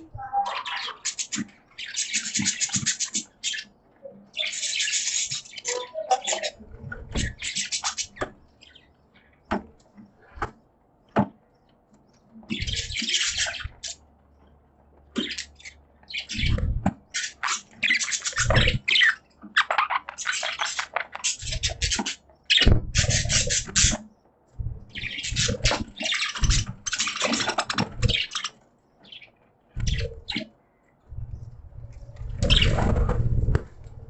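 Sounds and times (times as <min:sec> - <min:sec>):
budgerigars chattering: 0:00.0 - 0:03.7, 0:04.3 - 0:08.8, 0:12.5 - 0:14.0, 0:15.2 - 0:24.0, 0:24.9 - 0:30.5, 0:32.5 - 0:32.8.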